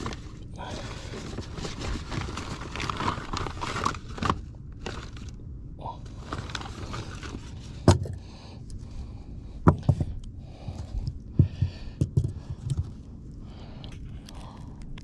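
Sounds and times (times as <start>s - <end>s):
dull knocks and thumps: 7.8s - 8.2s, 9.6s - 10.2s, 11.0s - 13.0s.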